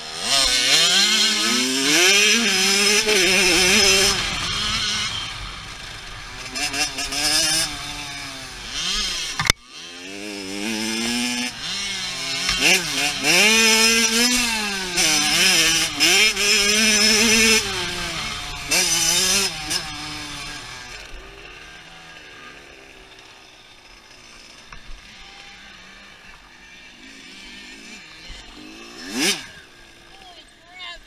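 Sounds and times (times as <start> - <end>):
loud engine burst sweeping by: 0.0 - 23.7
dirt bike engine revving: 0.0 - 31.0.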